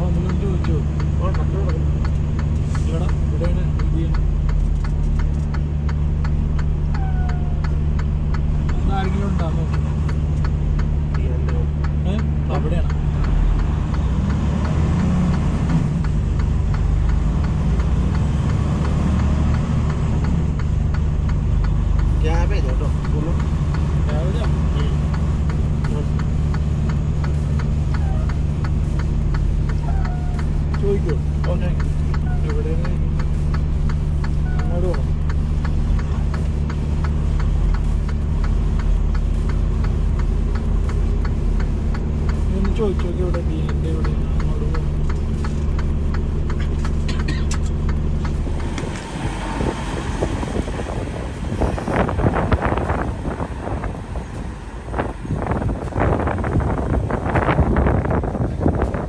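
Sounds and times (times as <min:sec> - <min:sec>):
turn signal relay ticking: 0:00.0 - 0:53.4
diesel truck engine running: 0:00.0 - 0:59.0
indicator clicking: 0:20.2 - 0:49.1.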